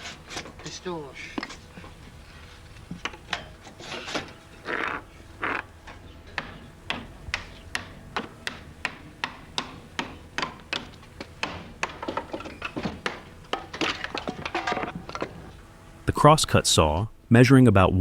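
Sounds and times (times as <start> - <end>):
sharp rhythmic knocks: 2.8 - 15.7.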